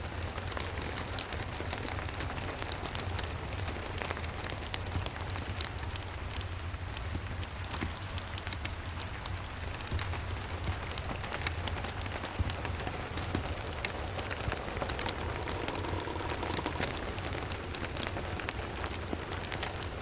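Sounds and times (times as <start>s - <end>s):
steady rain: 0.0s - 20.0s
wood fire crackling: 0.1s - 20.0s
low rumble: 11.9s - 19.8s.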